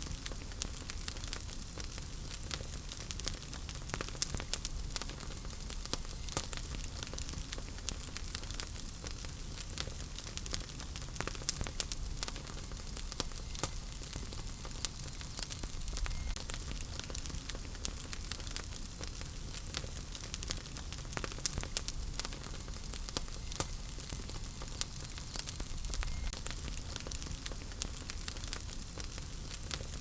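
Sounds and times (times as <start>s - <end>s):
fire rumble and hiss: 0.0s - 30.0s
wood fire crackling and popping: 0.0s - 30.0s.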